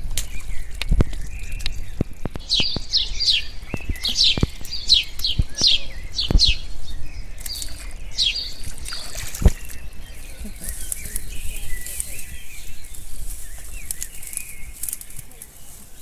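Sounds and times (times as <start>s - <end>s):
bird chirping: 0.0s - 16.0s
squelching in thick mud: 7.4s - 16.0s.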